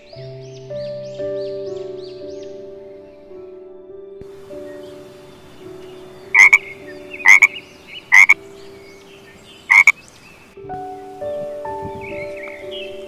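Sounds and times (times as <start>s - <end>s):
frog croaking: 6.3s - 8.4s, 9.6s - 10.0s.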